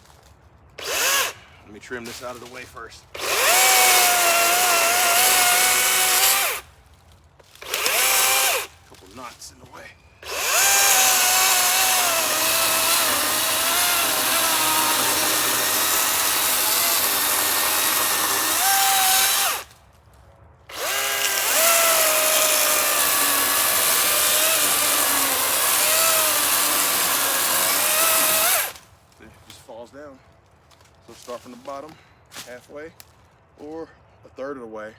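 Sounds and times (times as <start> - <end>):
electric chainsaw cutting log: 0.8 - 1.4, 3.2 - 6.6, 7.6 - 8.7, 10.2 - 19.7, 20.7 - 28.8.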